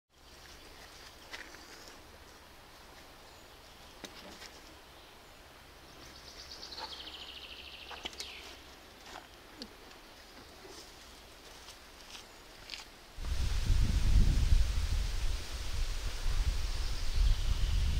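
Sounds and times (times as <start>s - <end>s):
songbird trill: 0.2s - 9.4s, 16.7s - 17.9s.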